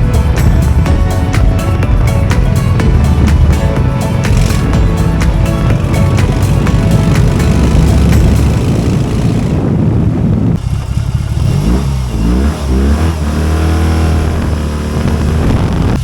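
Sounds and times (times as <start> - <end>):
motorcycle engine idling: 0.0 - 12.3
motorcycle engine revving: 0.0 - 16.0.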